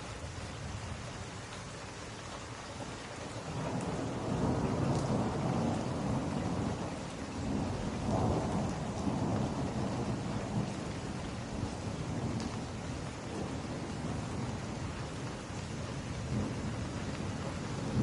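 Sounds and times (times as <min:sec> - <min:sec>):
steady rain: 0:00.0 - 0:18.0
thunder rumbling: 0:03.6 - 0:15.2, 0:15.9 - 0:18.0.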